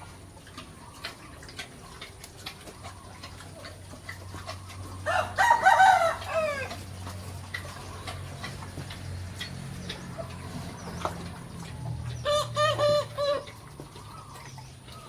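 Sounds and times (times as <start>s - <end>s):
rooster crowing: 5.0s - 6.8s.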